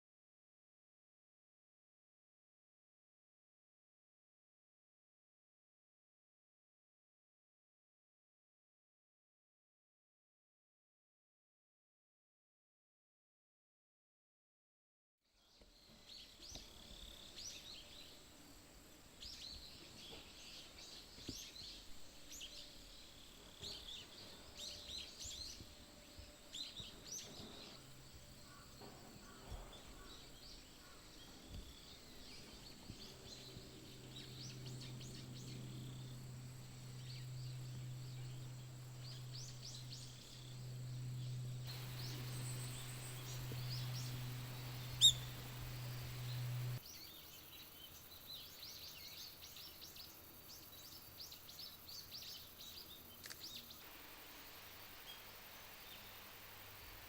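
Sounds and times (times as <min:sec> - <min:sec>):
faint outdoor ambience: 0:15.3 - 0:57.0
low steady hum: 0:16.0 - 0:57.0
wild birds chirping: 0:19.2 - 0:57.0.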